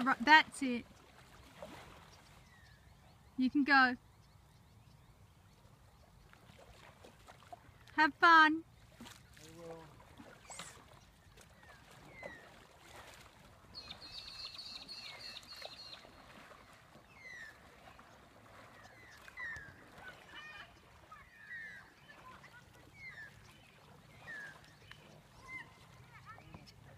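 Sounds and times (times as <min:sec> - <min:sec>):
faint bird calls: 0:08.8 - 0:26.9.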